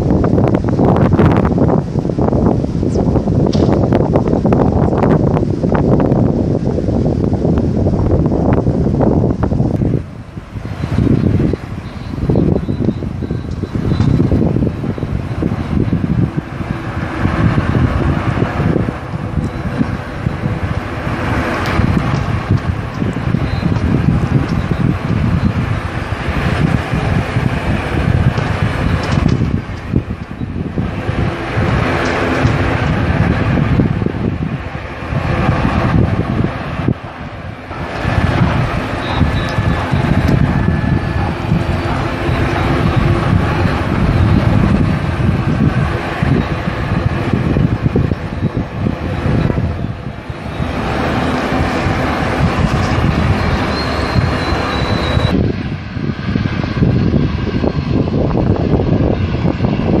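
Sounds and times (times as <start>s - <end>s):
aircraft engines rumbling: 0.0s - 60.0s
thin high whine: 0.0s - 60.0s
wind buffeting microphone: 0.0s - 60.0s
faint high whine: 10.7s - 18.1s, 37.7s - 56.1s.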